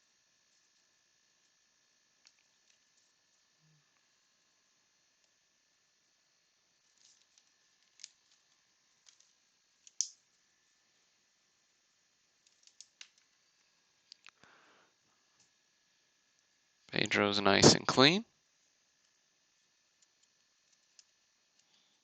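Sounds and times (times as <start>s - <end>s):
clicks and snaps of card stock: 6.9s - 8.4s, 9.0s - 10.2s, 12.4s - 13.3s.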